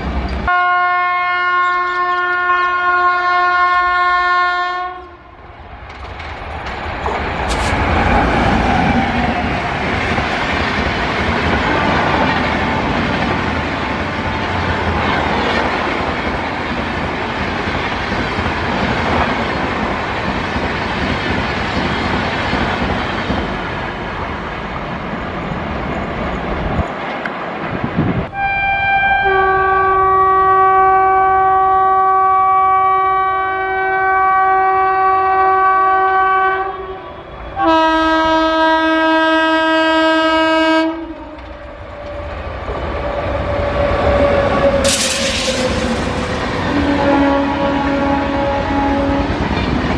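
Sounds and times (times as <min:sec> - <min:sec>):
train passing at speed: 0:00.0 - 0:49.9
locomotive horn: 0:00.5 - 0:05.3, 0:28.3 - 0:42.4, 0:43.1 - 0:49.5.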